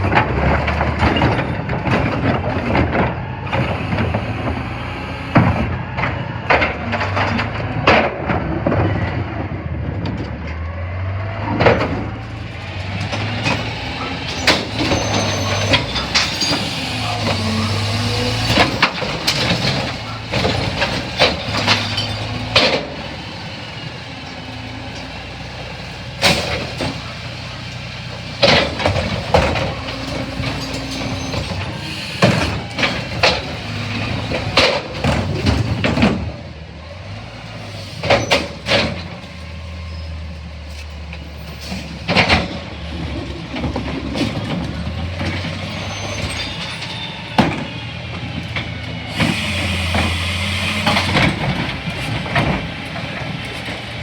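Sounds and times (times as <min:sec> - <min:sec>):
garbage truck engine hum: 0:00.0 - 0:54.0
sharp metal clanks and bangs: 0:11.5 - 0:23.4.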